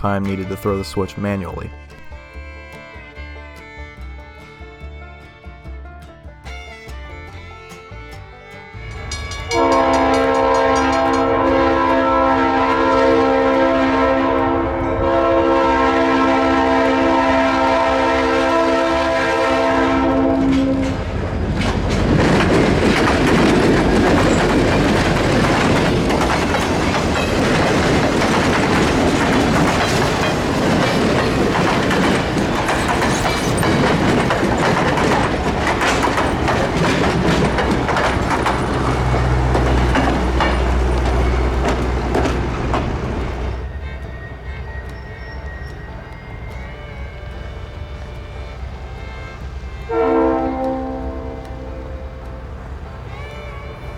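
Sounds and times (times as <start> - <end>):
wheels clicking over rail joints: 8.7 - 15.1, 20.0 - 53.9
train rumbling past: 8.7 - 53.9
locomotive air horn chord: 8.9 - 21.1, 38.9 - 52.6.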